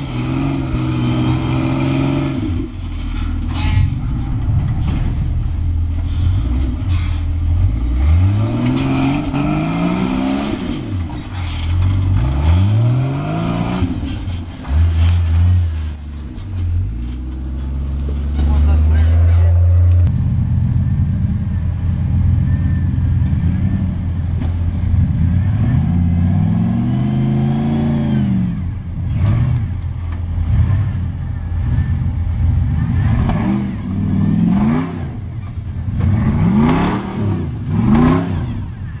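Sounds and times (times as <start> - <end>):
buggy engine revving: 0.0 - 39.0.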